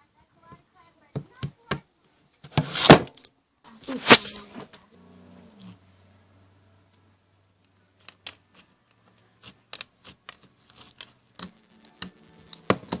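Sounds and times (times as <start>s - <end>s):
sharp clicks and small pops: 9.7s - 13.0s.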